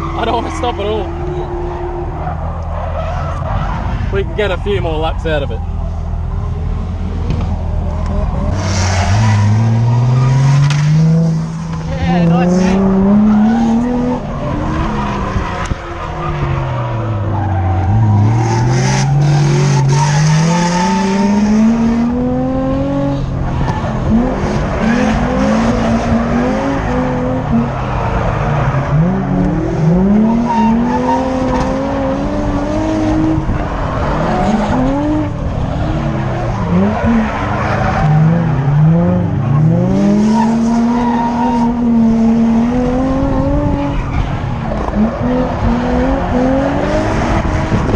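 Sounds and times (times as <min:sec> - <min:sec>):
car engine revving hard: 0:44.7 - 0:47.9.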